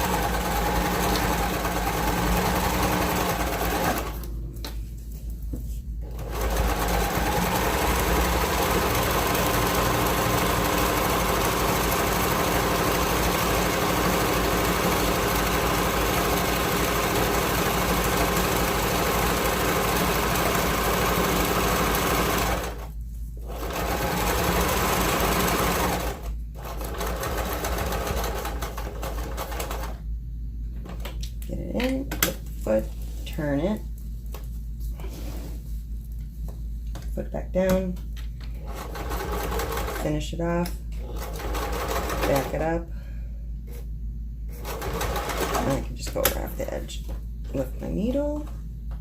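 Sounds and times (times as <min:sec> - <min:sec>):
sewing machine running fast: 0:00.0 - 0:04.3, 0:06.0 - 0:22.9, 0:23.5 - 0:30.0, 0:38.6 - 0:40.0, 0:41.0 - 0:42.6, 0:44.6 - 0:45.8.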